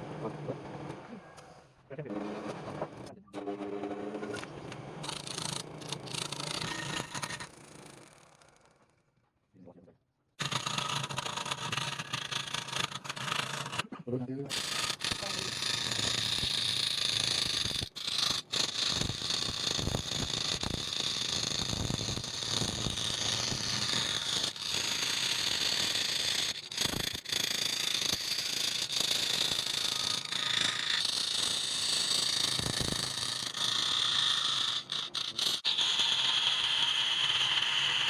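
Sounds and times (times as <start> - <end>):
wood lathe cutting hiss: 14.5 - 38.0.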